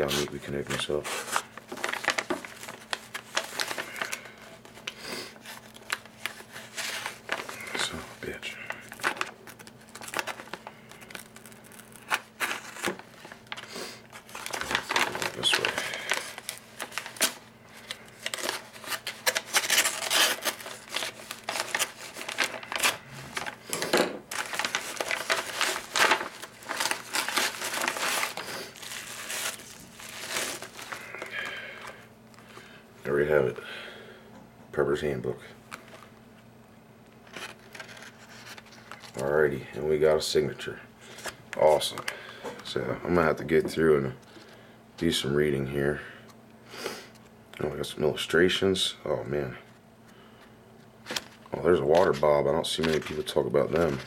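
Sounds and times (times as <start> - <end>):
packaging crinkling and crackling: 0.0 - 32.7, 37.2 - 39.3, 49.4 - 54.0.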